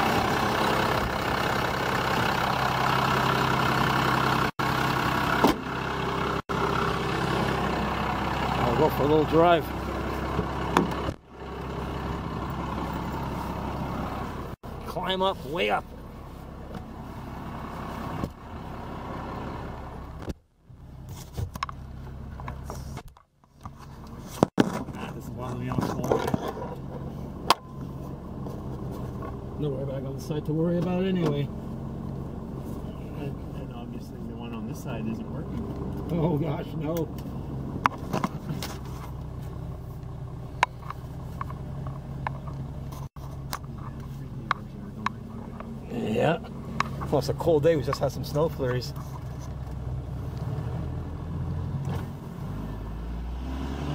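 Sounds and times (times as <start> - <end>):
engine knocks: 0.0 - 13.2
diesel engine idling: 0.0 - 21.0, 26.7 - 51.4.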